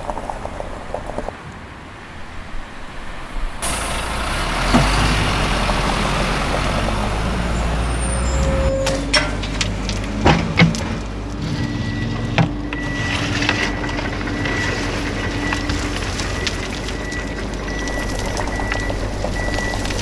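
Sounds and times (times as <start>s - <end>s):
heavy vehicle engine rumble: 0.0s - 1.4s, 3.3s - 20.0s.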